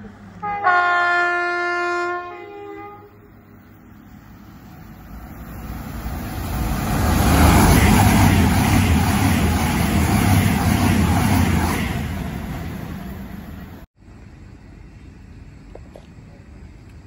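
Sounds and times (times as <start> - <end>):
diesel train engine hum: 0.0 - 17.0.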